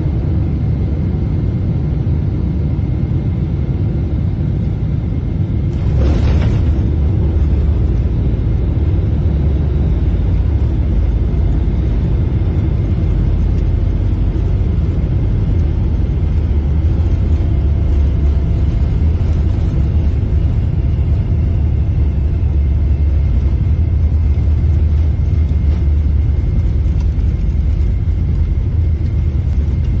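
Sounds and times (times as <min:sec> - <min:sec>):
airliner engine and airflow rumble: 0:00.0 - 0:30.0.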